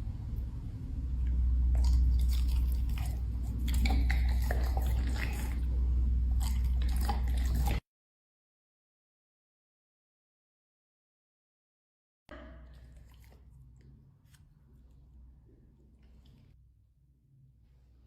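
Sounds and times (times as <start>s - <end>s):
steady low hum: 0.0s - 7.8s
dog chewing and crunching treats: 1.7s - 5.7s, 6.4s - 7.8s.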